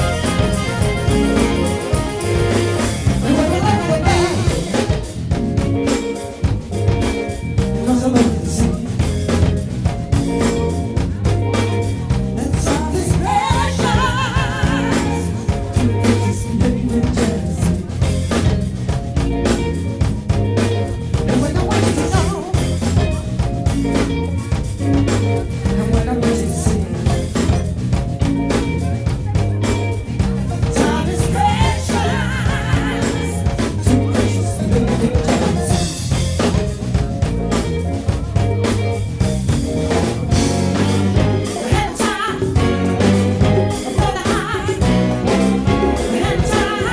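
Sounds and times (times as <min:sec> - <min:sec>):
person singing: 0:00.0 - 0:05.1, 0:07.6 - 0:09.5, 0:11.1 - 0:18.3, 0:21.2 - 0:23.3, 0:25.2 - 0:27.7, 0:30.5 - 0:36.5, 0:40.4 - 0:46.9
bass guitar: 0:00.0 - 0:46.9
drum kit beat: 0:00.0 - 0:46.9
soul band playing live: 0:00.0 - 0:46.9.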